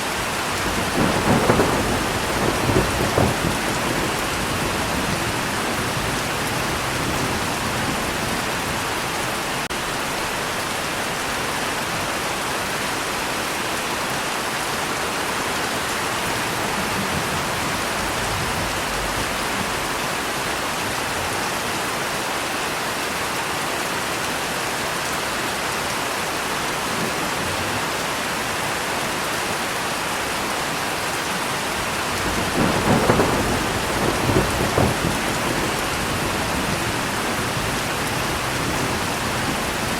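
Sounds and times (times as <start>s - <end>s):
thunder rumbling: 0.0s - 10.0s, 15.7s - 21.0s, 31.7s - 39.9s
steady rain hiss: 0.0s - 39.9s.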